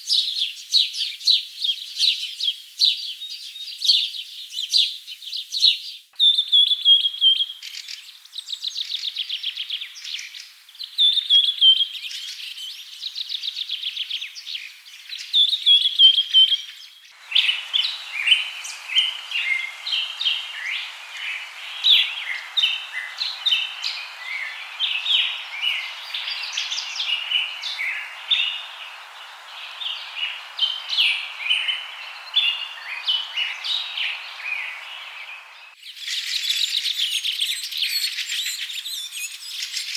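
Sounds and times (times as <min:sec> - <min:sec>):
steady hiss: 0:17.1 - 0:36.5
chorus of birds calling: 0:17.1 - 0:39.9
bird trilling: 0:17.2 - 0:35.8.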